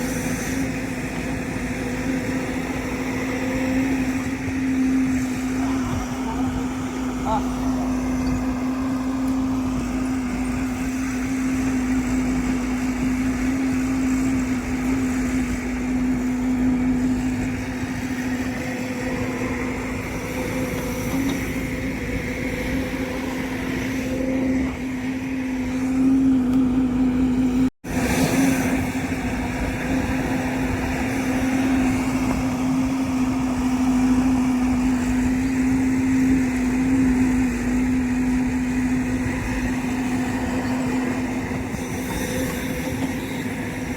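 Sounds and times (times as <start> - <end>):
heavy vehicle engine humming: 0.0 - 43.9.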